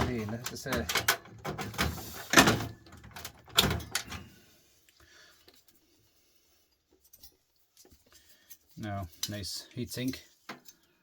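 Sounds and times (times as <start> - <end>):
computer parts clunking: 0.0 - 4.3.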